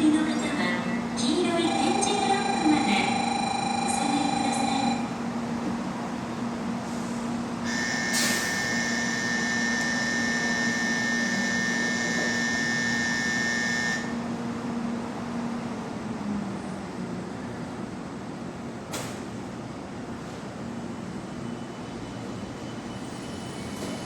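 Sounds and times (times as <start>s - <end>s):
train low hum: 0.0s - 24.0s
electronic warning tone: 1.4s - 5.1s, 7.7s - 14.2s.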